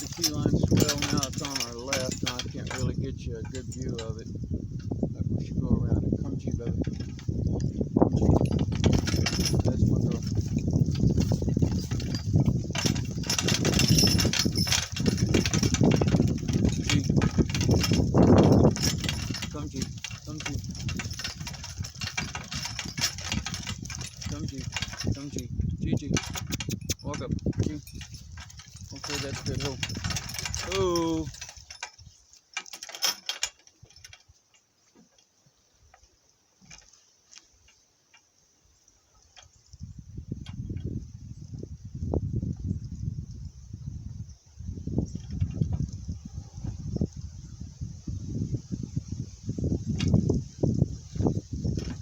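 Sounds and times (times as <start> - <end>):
cart knocks: 0.0 - 4.0, 8.2 - 25.4, 27.7 - 31.9
cart rattling over rough ground: 0.0 - 5.0, 6.0 - 38.3, 39.1 - 41.7, 44.8 - 47.6, 49.0 - 52.0.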